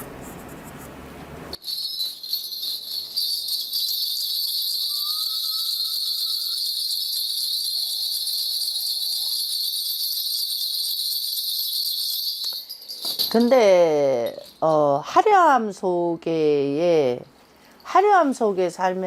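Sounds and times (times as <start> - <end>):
bells jingling: 1.6 - 15.0.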